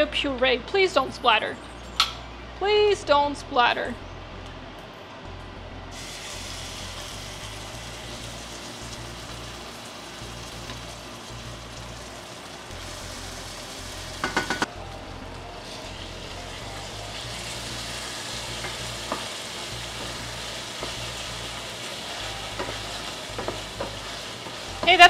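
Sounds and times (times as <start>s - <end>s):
puree sizzling in hot oil: 5.9s - 15.0s, 15.6s - 25.0s.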